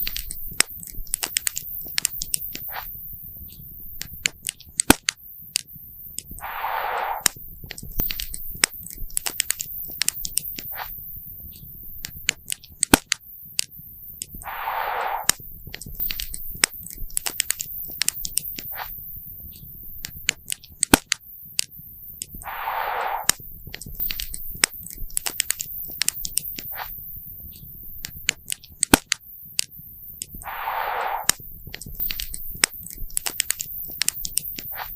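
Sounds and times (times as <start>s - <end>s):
short hisses: 6.4s - 7.3s, 14.4s - 15.4s, 22.4s - 23.4s, 30.4s - 31.4s.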